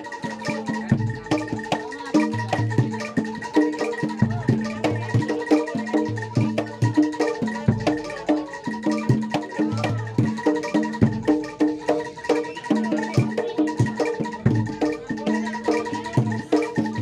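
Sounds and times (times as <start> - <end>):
bronze metallophones playing: 0.0 - 17.0.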